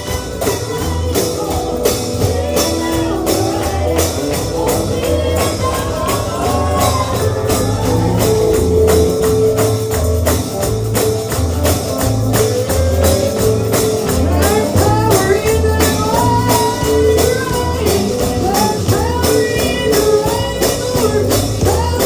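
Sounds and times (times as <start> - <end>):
bluegrass gospel music: 0.0 - 22.0
tambourine beat: 0.0 - 22.0.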